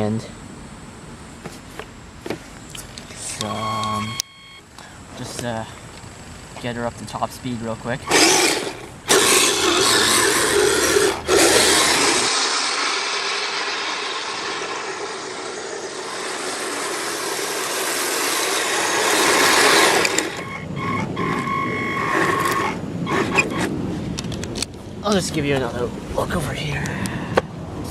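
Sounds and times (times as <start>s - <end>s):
toy vehicle motor whirring: 8.0s - 23.7s.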